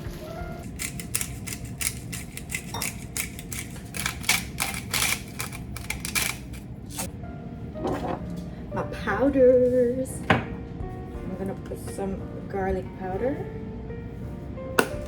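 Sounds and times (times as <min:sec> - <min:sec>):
kitchen clicks and taps: 0:00.6 - 0:07.1, 0:14.8 - 0:15.0.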